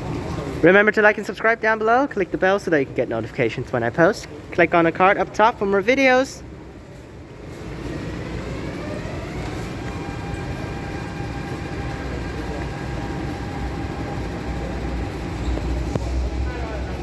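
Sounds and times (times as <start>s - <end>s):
train traction motors whining: 0.0s - 17.0s
wheels rumbling on rails: 5.4s - 17.0s.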